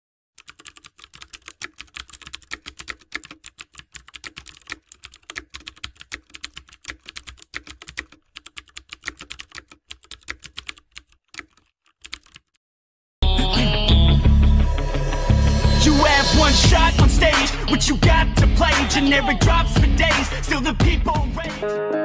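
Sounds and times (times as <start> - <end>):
keyboard typing: 0.4 - 12.6.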